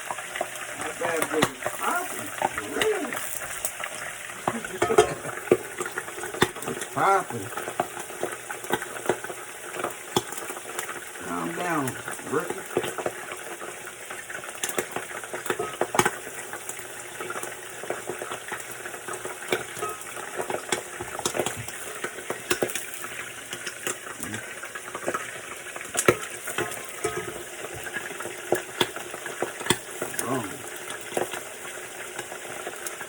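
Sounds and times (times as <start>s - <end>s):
poultry sizzling in grease: 0.0s - 33.0s
spitting fat popping: 1.0s - 7.7s, 24.0s - 24.6s, 29.6s - 31.3s.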